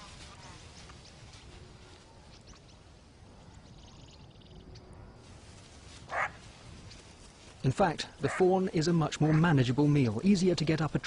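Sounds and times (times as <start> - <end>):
bird chirps: 2.2 - 5.0.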